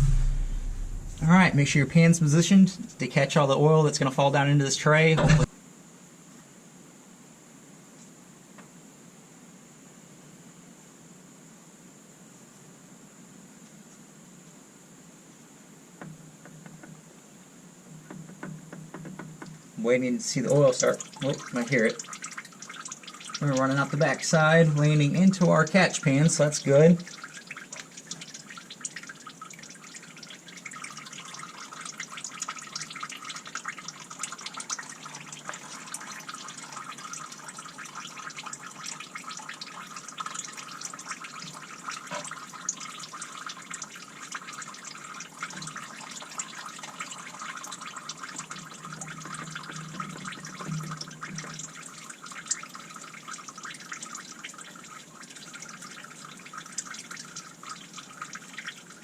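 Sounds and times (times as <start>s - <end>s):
oil dripping into pan: 20.8s - 59.0s.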